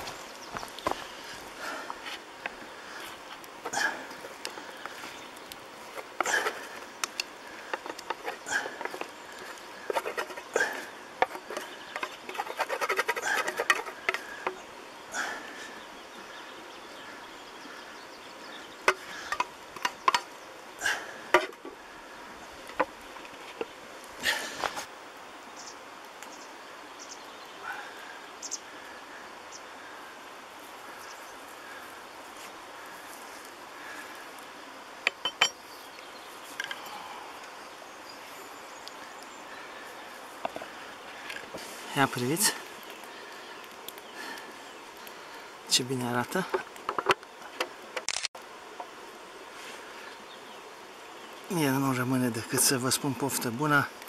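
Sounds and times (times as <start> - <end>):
faint outdoor background: 0.0 - 54.0
wooden spoon scraping a pan: 5.8 - 14.6.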